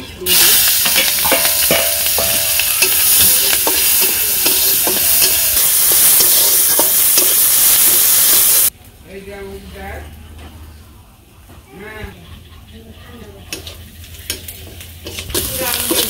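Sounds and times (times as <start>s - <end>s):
metal spatula scraping a pan: 0.1s - 8.1s, 13.5s - 16.0s
onions sizzling in hot oil: 0.2s - 8.7s, 13.6s - 16.0s.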